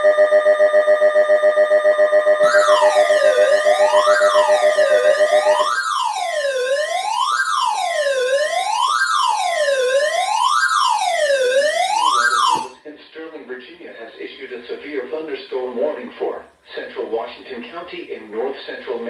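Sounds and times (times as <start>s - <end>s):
buzzing pulsing alarm tone: 0.0s - 12.8s
electronic wail siren: 0.0s - 12.8s.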